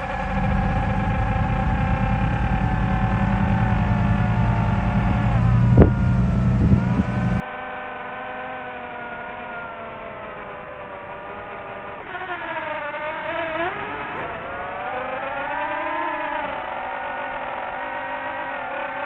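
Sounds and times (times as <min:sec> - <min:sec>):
motor humming: 0:00.0 - 0:07.4.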